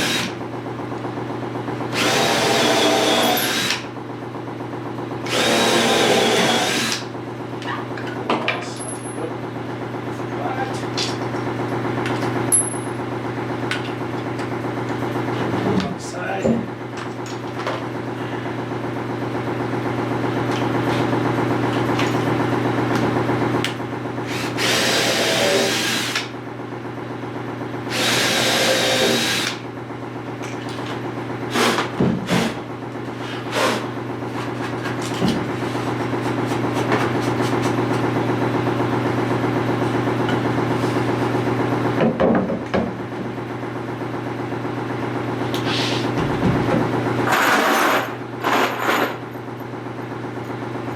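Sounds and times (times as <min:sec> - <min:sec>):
drill grinding bursts: 0:00.0 - 0:00.4, 0:01.9 - 0:03.9, 0:05.2 - 0:07.1, 0:24.2 - 0:26.3, 0:27.9 - 0:29.6
power drill drilling into wood: 0:00.0 - 0:00.4, 0:01.9 - 0:03.9, 0:05.3 - 0:07.0, 0:24.3 - 0:26.3, 0:27.9 - 0:29.6.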